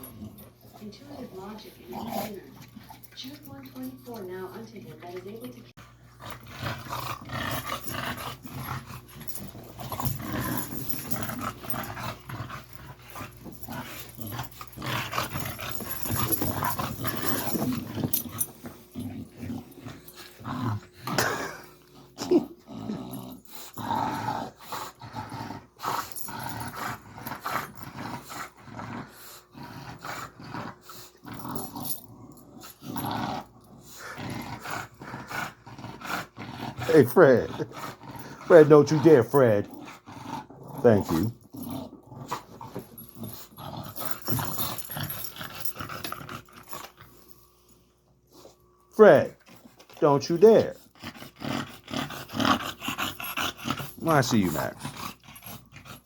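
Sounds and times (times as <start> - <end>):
dogs growling: 0.0 - 47.4, 48.3 - 56.0.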